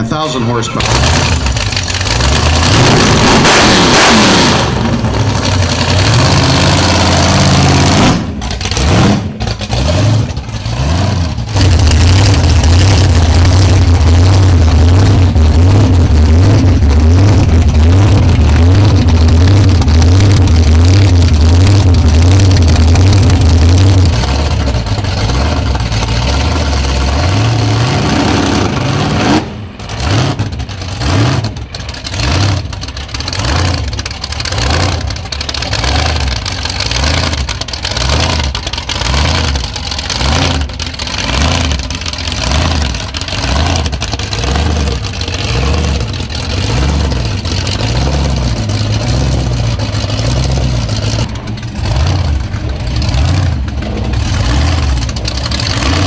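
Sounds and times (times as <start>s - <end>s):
car engine revving and idling: 0.0s - 56.0s.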